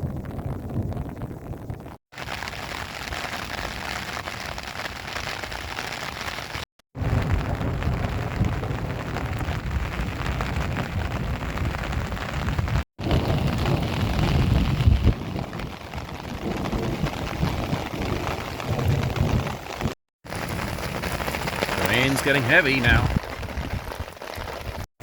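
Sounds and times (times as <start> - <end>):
rain hissing: 2.2 - 24.9
low thunder rumble: 7.0 - 24.4.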